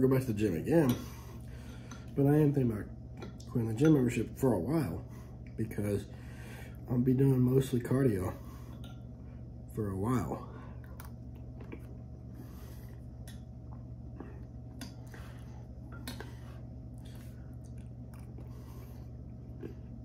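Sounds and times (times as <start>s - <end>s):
low hum: 0.0s - 20.0s
man chewing: 10.7s - 20.0s.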